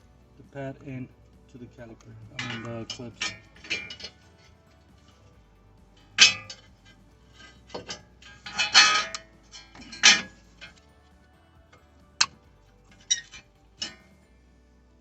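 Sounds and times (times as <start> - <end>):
brake pads clacking against metal clips: 6.0 - 10.8.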